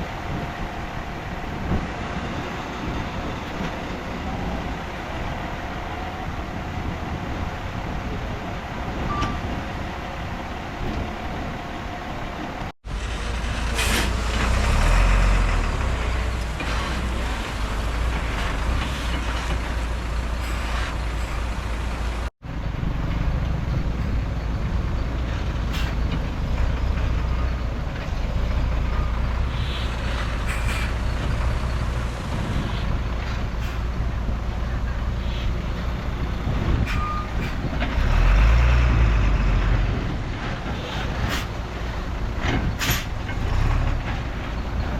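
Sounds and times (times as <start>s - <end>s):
heavy diesel machinery rumbling: 0.0s - 44.9s
clanking noises: 12.8s - 22.3s, 42.4s - 44.9s.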